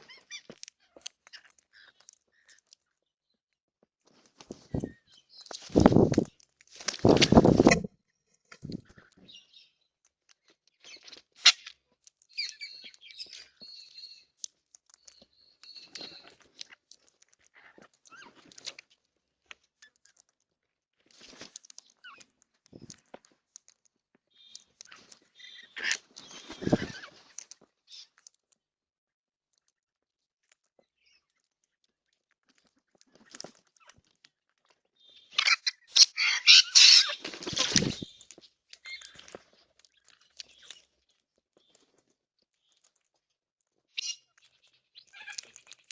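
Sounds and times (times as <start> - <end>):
rustling bursts: 5.6 - 7.9
birds chirping and whistling: 12.3 - 14.3, 15.0 - 16.4, 25.4 - 27.1, 35.1 - 39.3
bird squawking harshly: 35.4 - 38.0.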